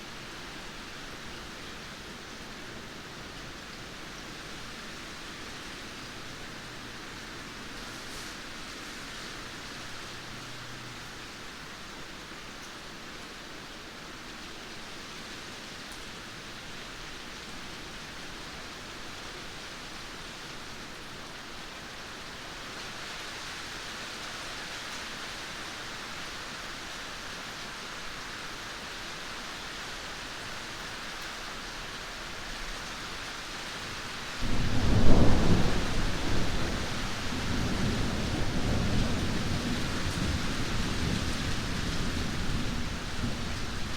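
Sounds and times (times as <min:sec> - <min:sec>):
steady rain falling: 0:00.0 - 0:43.9
thunderclap with rolling rumble: 0:34.4 - 0:43.9.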